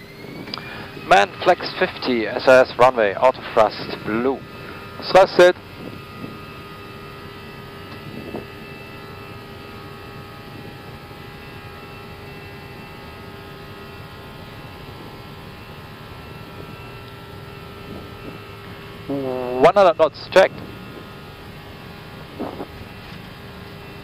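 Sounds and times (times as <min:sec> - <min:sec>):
jet engine and runway rumble: 0:00.0 - 0:24.0
steady engine tones: 0:00.0 - 0:24.0.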